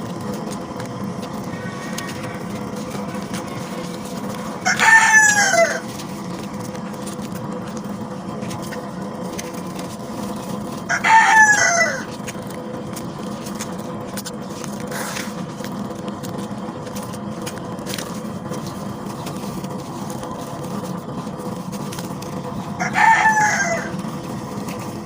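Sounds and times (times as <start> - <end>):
rooster crowing: 1.4 - 2.8, 4.5 - 5.9, 10.8 - 12.1, 22.7 - 24.1.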